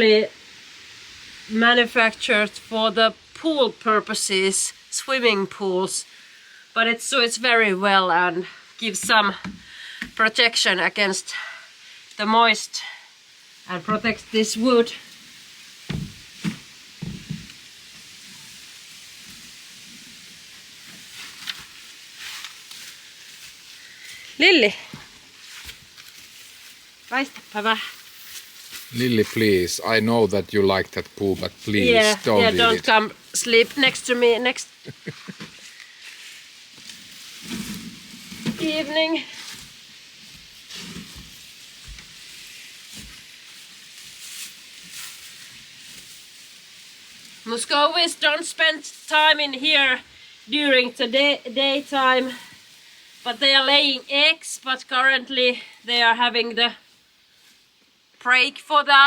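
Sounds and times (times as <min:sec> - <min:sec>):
steady hiss: 0:00.0 - 0:59.0
hay and plastic sheeting rustling: 0:13.3 - 0:58.1
soft dull knocks: 0:15.9 - 0:17.5
light thumps: 0:15.9 - 0:17.6.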